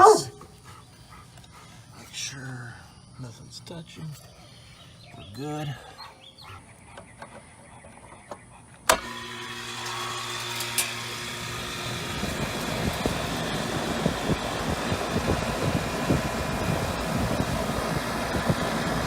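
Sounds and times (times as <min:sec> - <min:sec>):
compressor humming: 0:08.8 - 0:19.0
fan rushing air: 0:08.9 - 0:19.0.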